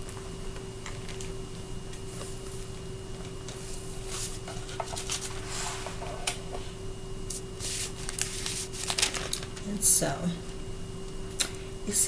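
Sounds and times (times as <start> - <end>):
faint steady hum: 0.0 - 12.0
book pages rustling: 7.6 - 9.4.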